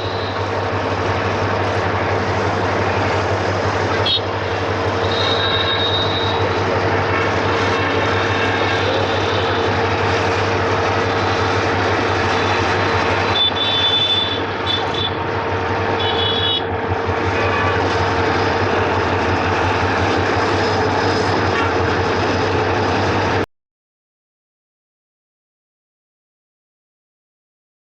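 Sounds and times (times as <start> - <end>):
high wheel squeals: 0.0 - 0.7, 4.0 - 6.8, 7.4 - 10.2, 12.1 - 15.2, 15.9 - 19.0
freight train rumbling past: 0.0 - 23.5.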